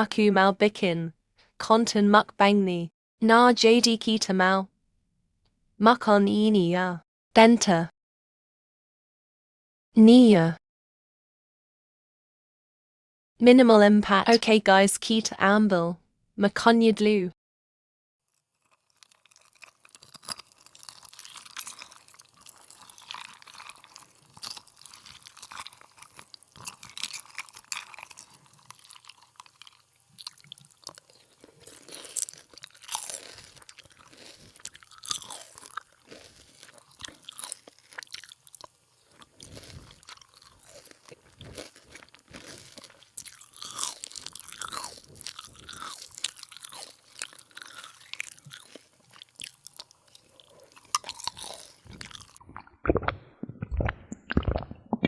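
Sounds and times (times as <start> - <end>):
crunchy food chewing: 18.3 - 54.7.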